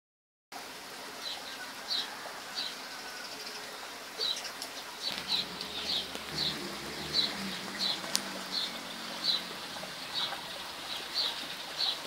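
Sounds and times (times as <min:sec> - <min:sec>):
bird chirping: 0:04.2 - 0:12.0.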